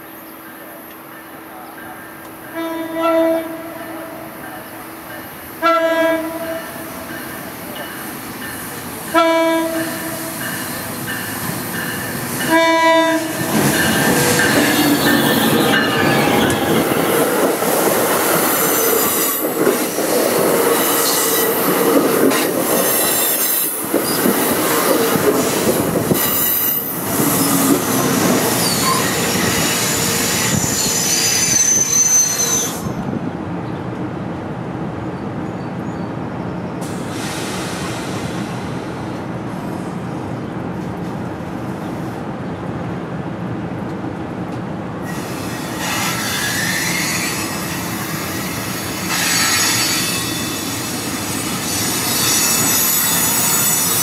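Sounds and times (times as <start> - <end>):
train horn blasts: 2.5 - 4.3, 5.6 - 7.0, 9.1 - 10.4, 12.4 - 13.5
high flange squeal: 13.2 - 17.2, 28.4 - 33.0, 45.1 - 54.0.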